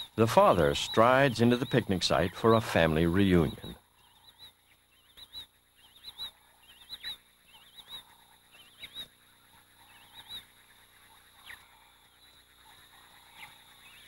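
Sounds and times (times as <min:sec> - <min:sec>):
bird whistling call: 0:00.0 - 0:04.5.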